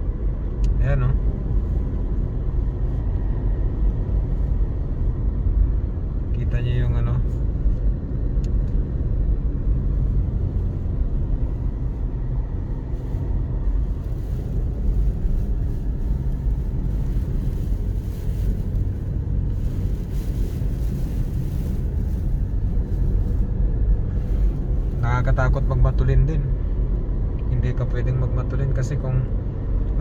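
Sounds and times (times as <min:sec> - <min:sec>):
car driving rumble: 0:00.0 - 0:30.0
strong wind rushing: 0:07.4 - 0:25.3.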